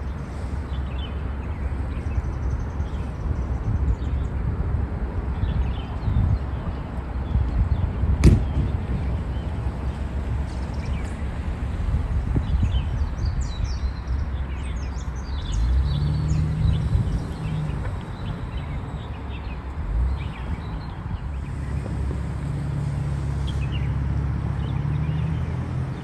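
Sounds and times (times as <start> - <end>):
steady low rumble: 0.0 - 15.5, 16.2 - 25.6
passing vehicle engine hum: 0.0 - 26.0
small birds chirping: 12.3 - 26.0.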